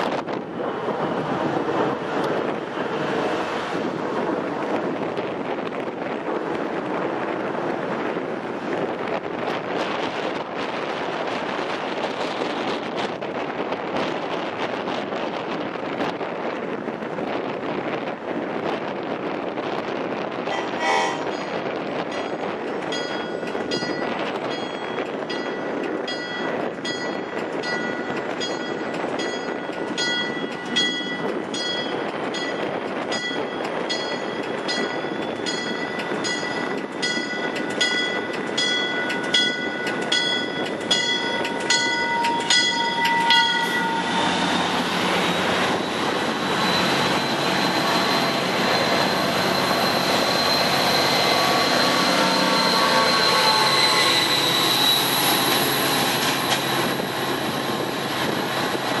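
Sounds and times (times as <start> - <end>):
diesel locomotive engine running: 0.0 - 13.7, 20.2 - 59.0
train rolling past: 0.0 - 59.0
warning bell ringing: 22.9 - 44.6
wheels squealing: 34.0 - 59.0.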